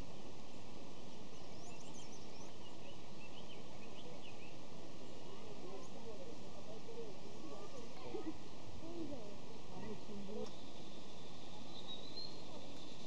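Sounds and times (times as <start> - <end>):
birds chirping: 0.0 - 13.0
steady background hiss: 0.0 - 13.0.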